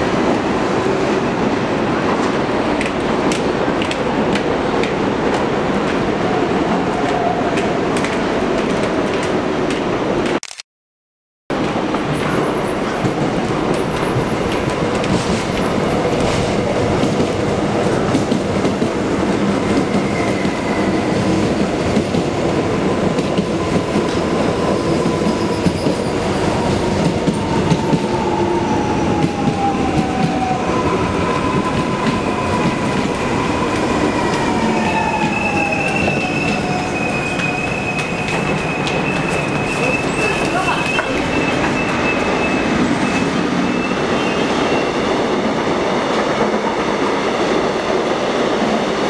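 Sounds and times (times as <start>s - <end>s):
train wheels on rails: 0.0s - 10.4s, 11.5s - 49.0s
brake squeal: 35.2s - 45.0s.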